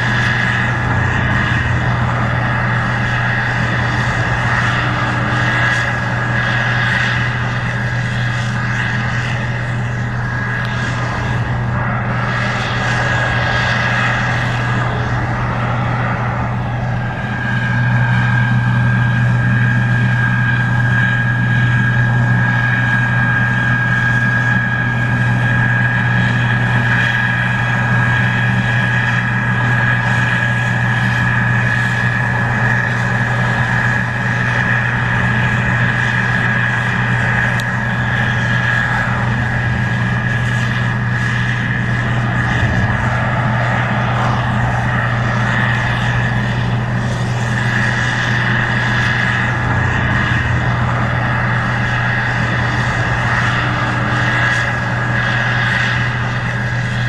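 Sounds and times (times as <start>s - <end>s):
combine harvester diesel hum: 0.0s - 57.0s
high machine whine: 0.0s - 57.0s.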